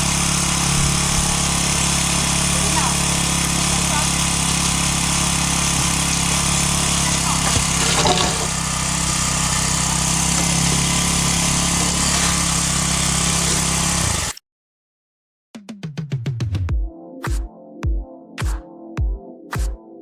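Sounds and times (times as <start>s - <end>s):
engine running steadily: 0.0s - 14.3s
clatter: 5.6s - 8.7s.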